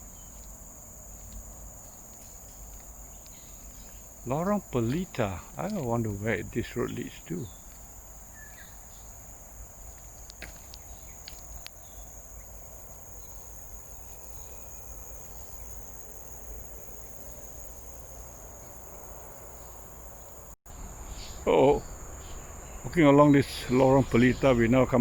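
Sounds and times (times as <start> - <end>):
insects droning: 0.0 - 25.0
faint ticks: 9.9 - 12.0.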